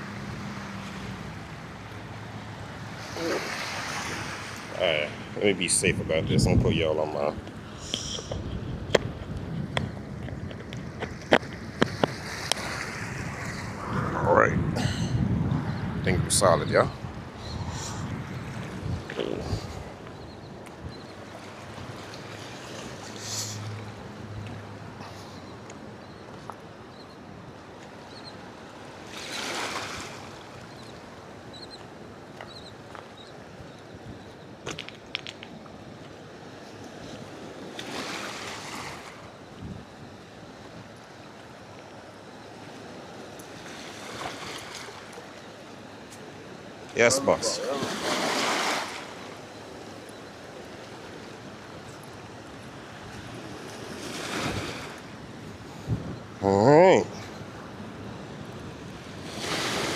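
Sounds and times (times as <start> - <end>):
sea water washing against shore: 0.0 - 14.8, 27.5 - 32.2, 36.2 - 57.0, 57.6 - 59.9
wind: 0.0 - 59.9.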